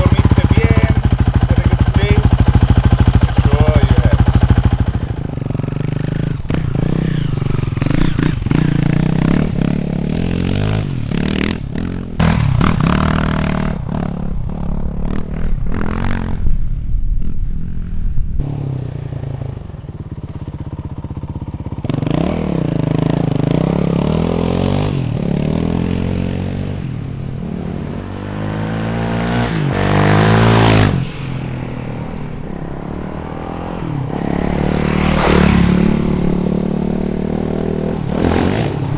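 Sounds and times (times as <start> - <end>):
knocks and rattles from motorcycle: 0.0 - 15.2
motorcycle engine revving: 0.0 - 38.9.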